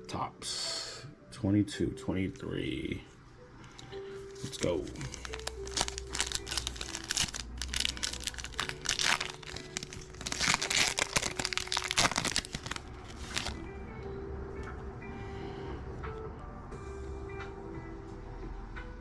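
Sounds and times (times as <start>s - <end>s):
foil wrapper tearing and crinkling: 4.4s - 13.6s.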